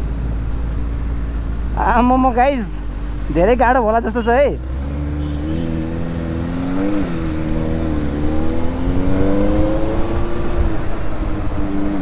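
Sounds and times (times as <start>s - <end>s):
wind and road rumble: 0.0s - 12.0s
motorcycle engine accelerating: 4.5s - 12.0s.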